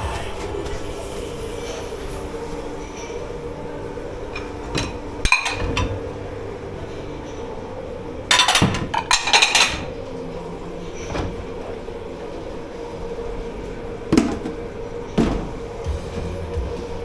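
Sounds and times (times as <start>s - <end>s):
steady machine hum: 0.0s - 17.0s
dishes and pots clattering: 4.3s - 6.0s, 8.3s - 10.1s, 10.9s - 11.8s, 14.1s - 15.8s
dishes knocking: 4.4s - 6.0s, 8.3s - 10.0s, 14.1s - 15.8s.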